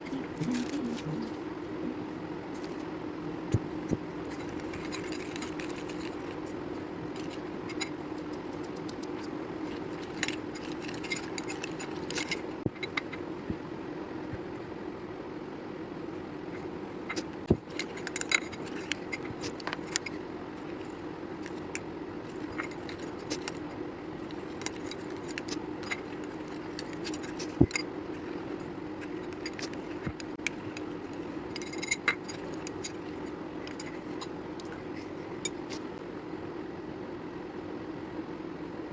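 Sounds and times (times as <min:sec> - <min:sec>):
steady low hum: 0:00.0 - 0:38.9
containers and utensils clinking: 0:04.2 - 0:13.2, 0:17.1 - 0:36.0.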